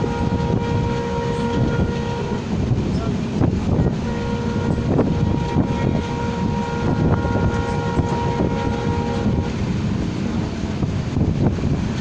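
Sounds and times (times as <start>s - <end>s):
train horn: 0.0s - 3.1s, 3.7s - 9.8s
train rumbling with wheel knocks: 0.0s - 12.0s.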